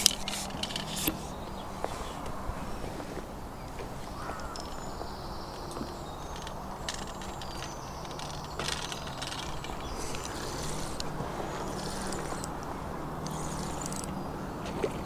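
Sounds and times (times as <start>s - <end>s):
birds chirping: 0.0s - 15.0s
sharp clicks: 5.7s - 14.2s.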